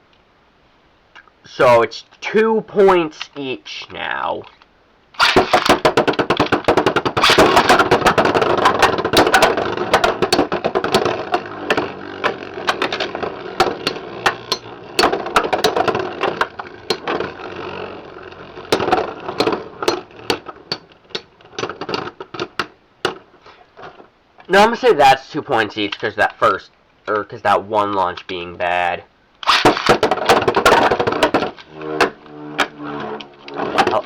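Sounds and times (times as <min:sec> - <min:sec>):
sharp plastic clacks: 0:04.4 - 0:24.5, 0:28.0 - 0:28.5, 0:29.4 - 0:34.0
spinning tops grinding whir: 0:05.2 - 0:22.6, 0:29.4 - 0:34.0.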